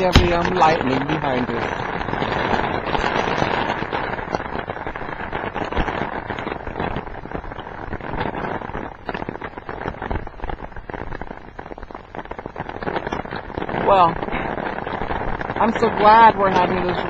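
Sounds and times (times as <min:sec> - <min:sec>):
rain patter: 0:00.0 - 0:17.0.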